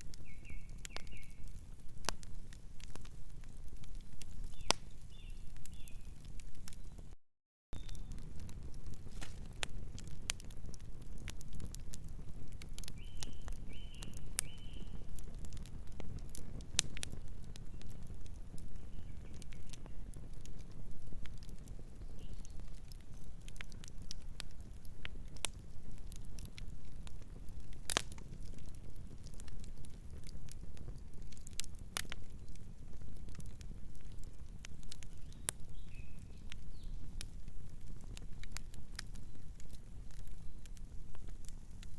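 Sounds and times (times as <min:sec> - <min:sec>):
wood fire crackling: 0:00.0 - 0:07.2, 0:07.8 - 0:41.9
bird chirping: 0:07.8 - 0:08.1.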